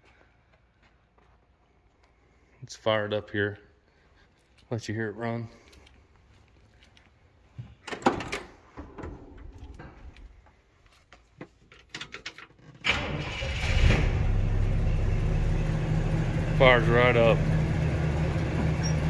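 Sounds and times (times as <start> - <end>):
car engine starting and running: 12.8 - 19.0.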